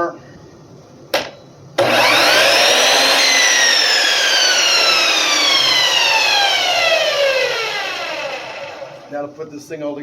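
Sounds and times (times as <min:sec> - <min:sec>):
saw motor whining: 0:01.8 - 0:09.2.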